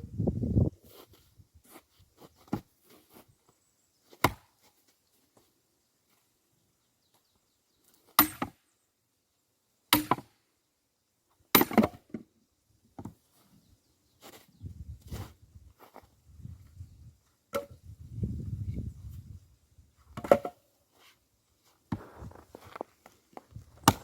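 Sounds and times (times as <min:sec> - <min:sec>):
axe chopping logs: 0:04.1 - 0:04.5, 0:08.2 - 0:08.6, 0:09.9 - 0:10.3, 0:11.5 - 0:12.2, 0:20.2 - 0:20.6, 0:23.8 - 0:24.0.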